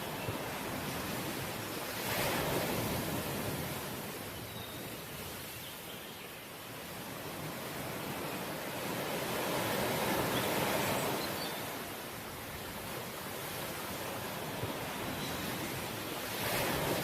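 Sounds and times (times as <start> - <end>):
sea waves breaking: 0.0 - 4.3, 7.0 - 17.0.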